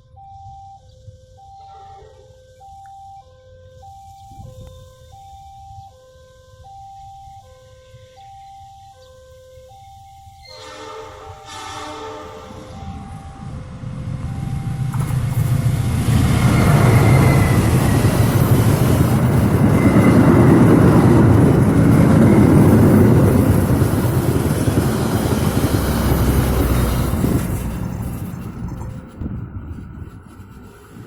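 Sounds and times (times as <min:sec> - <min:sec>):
diesel train passing: 0:10.4 - 0:31.0.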